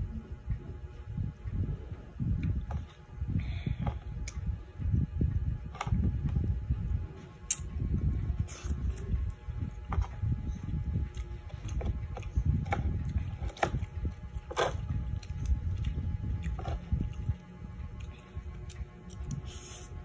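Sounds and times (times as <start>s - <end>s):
chewing: 11.0s - 19.9s.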